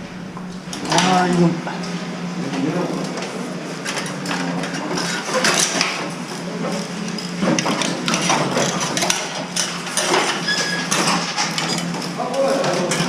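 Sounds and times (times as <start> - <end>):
diesel engine running: 0.0 - 10.2.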